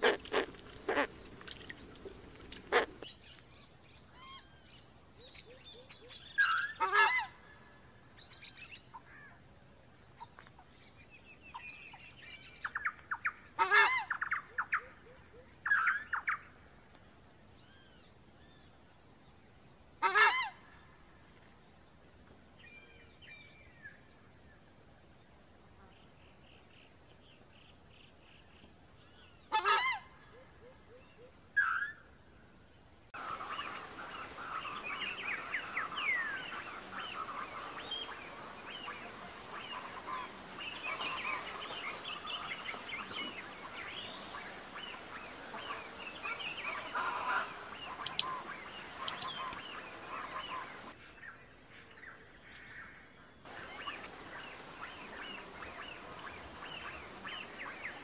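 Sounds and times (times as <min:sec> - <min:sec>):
bird calling loudly: 0:00.0 - 0:01.1
high-pitched insect drone: 0:33.1 - 0:51.0
bird chirps: 0:33.2 - 0:51.0.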